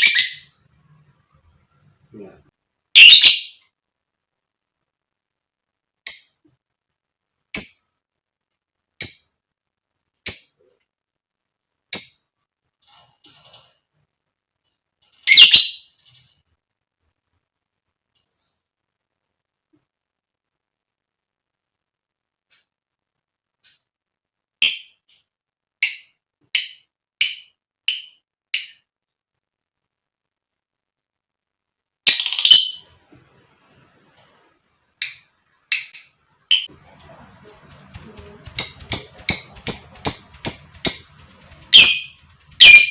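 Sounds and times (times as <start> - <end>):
lovebird shrill calls: 0.0 - 0.5, 3.0 - 3.6, 15.2 - 15.9, 38.6 - 42.9.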